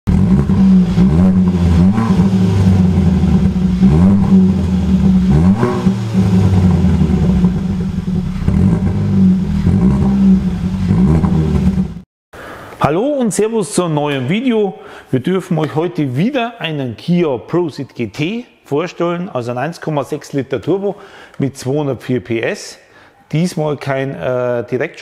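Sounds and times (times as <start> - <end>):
car engine revving: 0.1 - 12.0.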